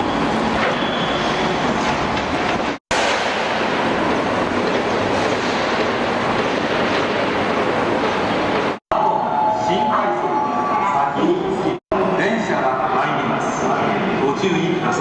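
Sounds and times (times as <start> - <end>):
train wheels clattering on rails: 1.9 - 8.8.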